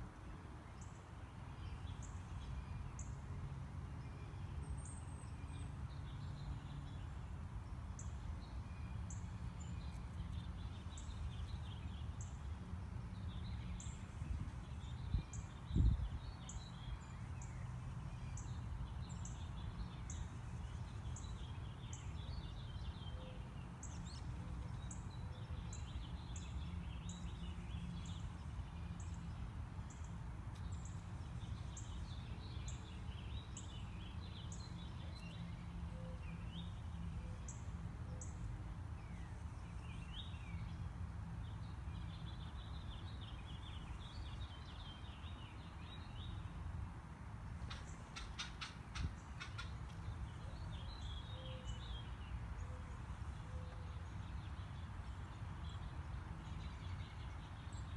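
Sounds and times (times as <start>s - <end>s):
small birds chirping: 4.2s - 46.6s.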